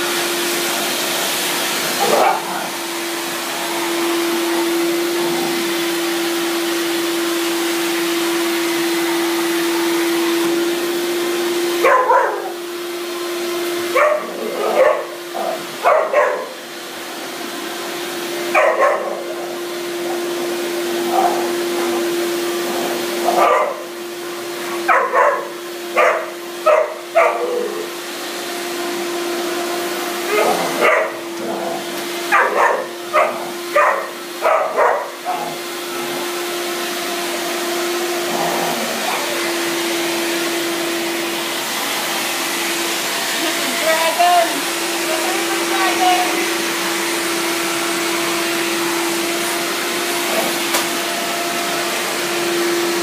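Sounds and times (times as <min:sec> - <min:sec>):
vacuum cleaner motor humming: 0:00.0 - 0:53.0
dog barking: 0:02.0 - 0:02.6, 0:11.8 - 0:12.6, 0:13.9 - 0:16.6, 0:18.5 - 0:19.3, 0:23.3 - 0:23.8, 0:24.9 - 0:27.6, 0:30.3 - 0:31.2, 0:32.3 - 0:35.6.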